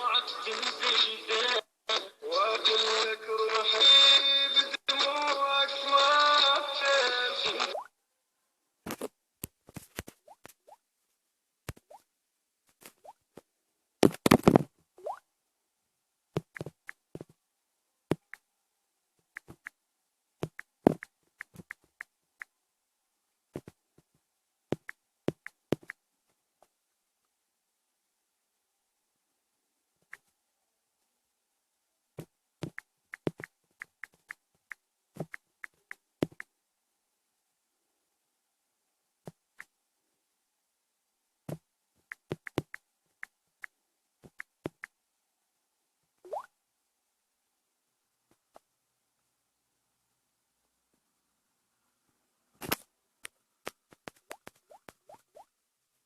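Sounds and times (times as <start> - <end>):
short sharp clicks and taps: 32.2 - 36.5.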